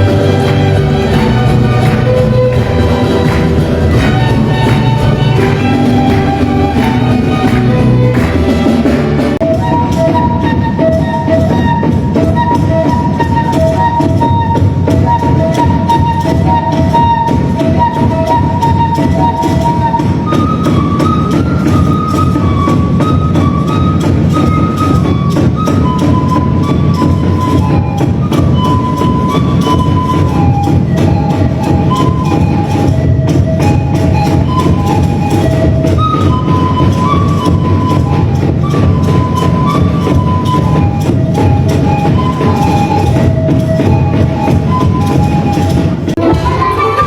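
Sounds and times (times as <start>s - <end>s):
strong bass: 0.0s - 9.5s
melody over fast percussion: 0.0s - 47.0s.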